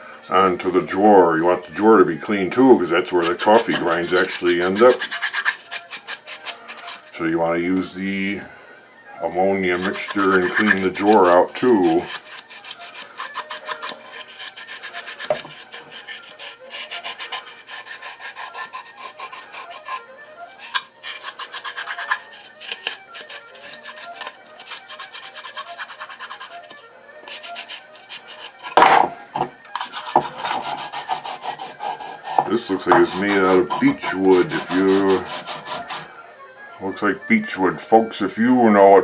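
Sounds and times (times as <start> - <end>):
scrubbing wood: 3.0 - 7.1, 9.6 - 29.0, 29.8 - 36.1.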